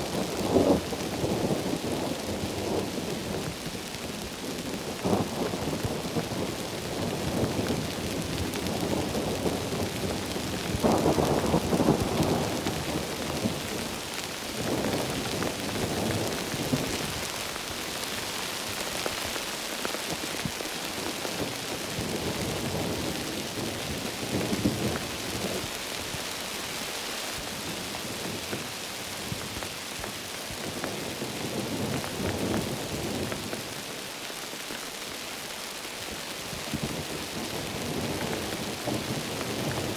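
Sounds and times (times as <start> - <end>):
heavy rain: 0.0 - 39.9
low thunder rumbles: 4.8 - 17.3.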